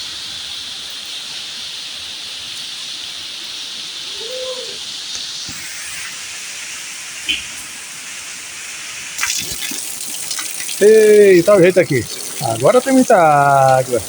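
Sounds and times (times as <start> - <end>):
heavy rain: 0.0 - 14.0
faint call: 4.1 - 4.9
water splashes and drips: 6.6 - 14.0.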